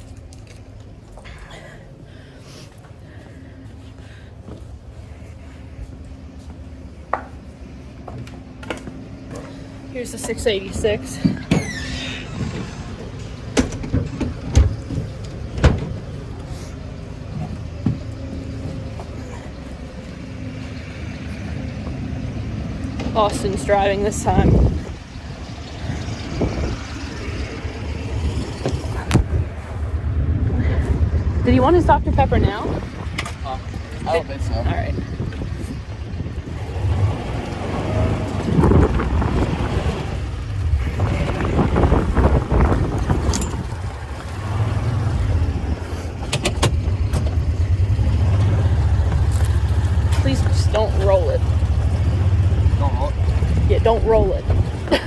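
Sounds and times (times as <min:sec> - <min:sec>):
tractor engine running: 0:00.0 - 0:55.0
wind buffeting microphone: 0:21.8 - 0:55.0.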